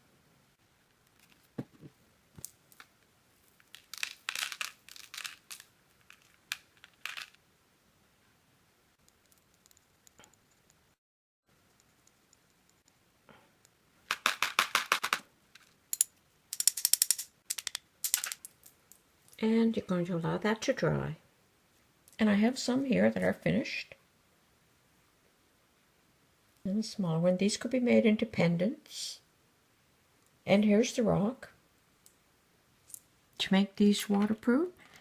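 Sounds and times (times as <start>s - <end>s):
grains poured rattling clicks: 3.6s - 7.4s.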